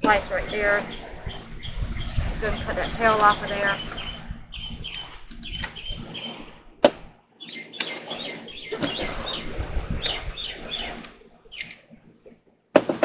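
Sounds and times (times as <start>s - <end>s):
small birds chirping: 0.0s - 12.4s
sharp clicks: 11.0s - 12.4s.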